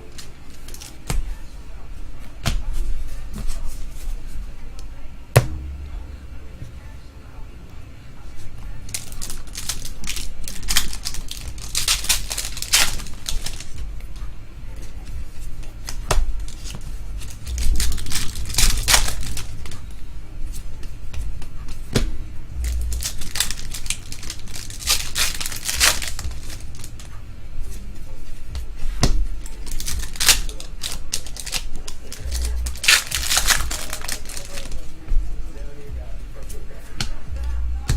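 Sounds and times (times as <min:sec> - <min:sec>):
foil wrappers crinkling and tearing: 0:00.0 - 0:01.0, 0:08.8 - 0:13.8, 0:16.4 - 0:19.8, 0:22.7 - 0:27.1, 0:29.4 - 0:34.9.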